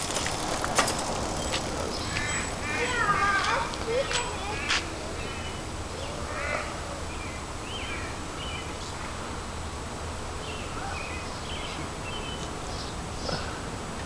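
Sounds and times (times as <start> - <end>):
outdoor background hum: 0.0 - 14.0
small birds chirping: 1.3 - 9.2, 10.4 - 13.7.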